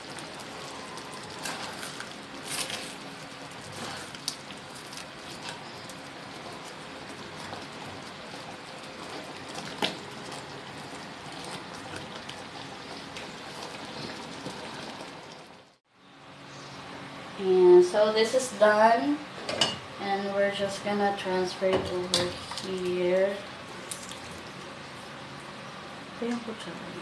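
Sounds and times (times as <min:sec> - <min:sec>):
sauce bubbling in a pan: 0:00.0 - 0:15.8.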